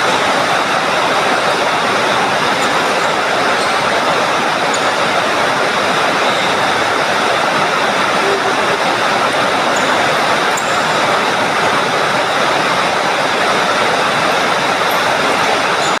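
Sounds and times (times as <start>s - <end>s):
heavy rain downpour: 0.0s - 16.0s.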